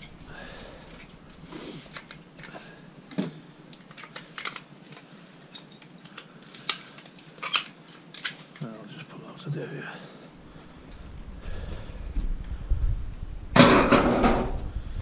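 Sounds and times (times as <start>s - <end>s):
sharp metal knocks: 13.6s - 14.6s.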